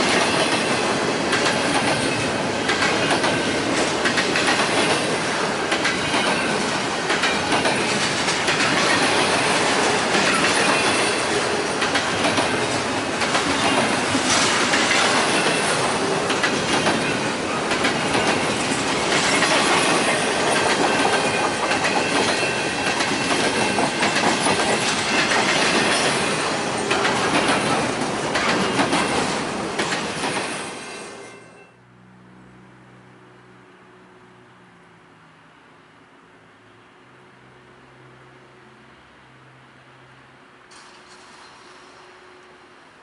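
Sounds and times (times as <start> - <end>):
wheels clicking over rail joints: 0.0 - 30.8
faint high wheel squeal: 30.7 - 31.8, 40.7 - 42.7.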